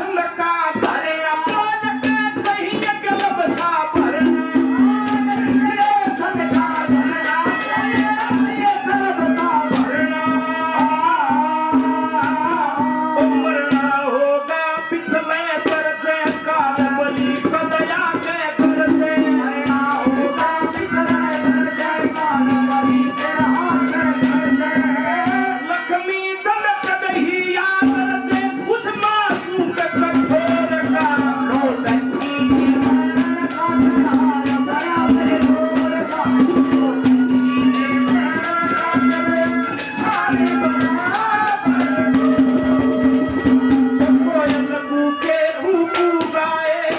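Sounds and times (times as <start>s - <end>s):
fast hand drum rhythm: 0.0s - 14.2s, 15.2s - 25.7s, 26.5s - 46.9s
folk melody line: 27.1s - 46.9s.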